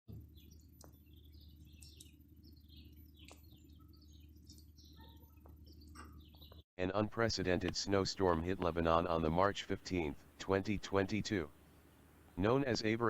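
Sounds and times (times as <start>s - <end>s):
small birds chirping: 0.1s - 6.6s, 7.2s - 13.0s
steady low hum: 0.1s - 13.0s.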